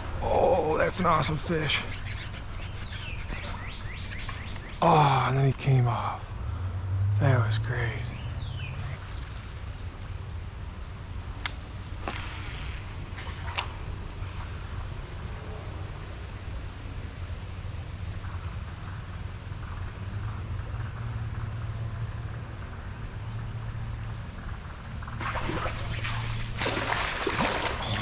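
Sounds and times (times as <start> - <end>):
water and wading: 8.6 - 10.4, 24.9 - 28.0
fish splashing at surface: 25.2 - 28.0.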